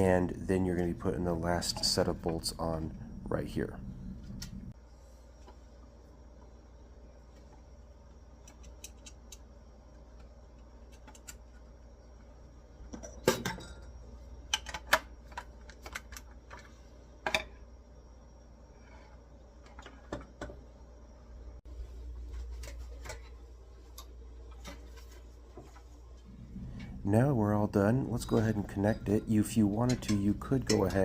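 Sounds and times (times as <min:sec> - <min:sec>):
metal parts and tool clattering: 0:12.9 - 0:16.7, 0:28.4 - 0:31.0.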